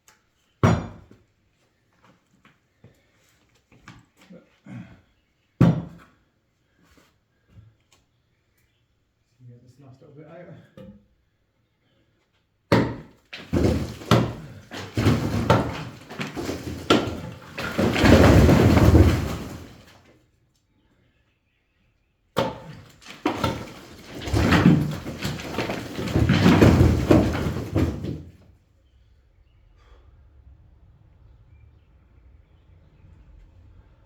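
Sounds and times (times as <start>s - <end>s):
bricks and rubble falling: 12.7s - 20.0s, 22.4s - 28.4s
bricks being knocked out: 12.7s - 20.0s, 22.4s - 28.4s.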